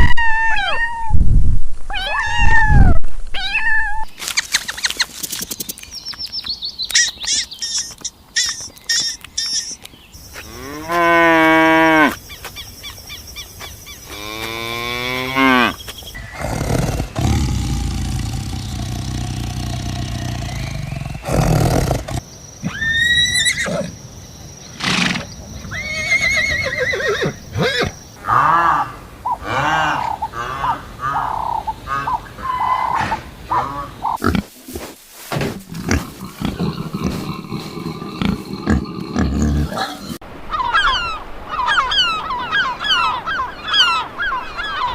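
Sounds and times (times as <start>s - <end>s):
farm animals calling: 35.6s - 44.9s.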